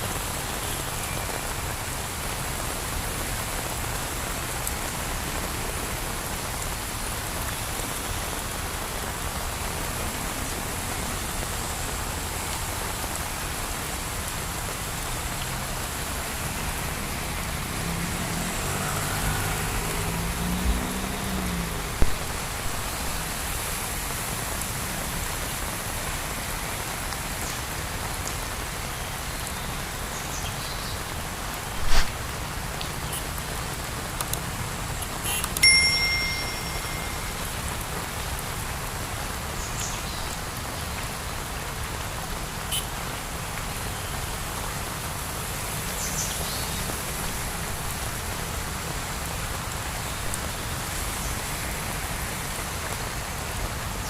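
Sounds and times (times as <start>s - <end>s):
heavy rain falling: 0.0s - 54.0s
brief high ringing tone: 35.6s - 37.7s.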